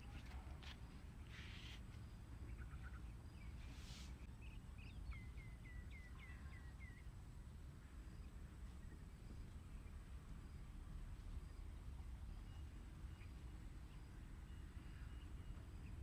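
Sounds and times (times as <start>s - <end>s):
small bird whistling song: 2.5s - 7.1s.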